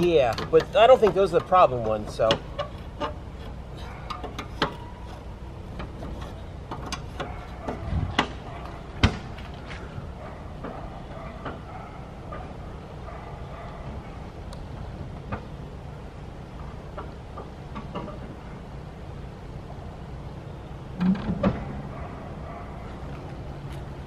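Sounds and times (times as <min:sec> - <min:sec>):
metal clicks and knocks: 0:00.0 - 0:09.4, 0:11.4 - 0:11.7, 0:16.6 - 0:18.4
low steady rumble: 0:00.0 - 0:24.0.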